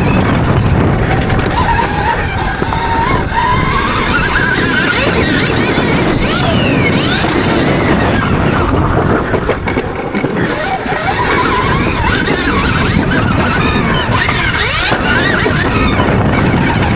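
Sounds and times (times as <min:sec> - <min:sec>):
electric motor whining: 0:00.0 - 0:16.9.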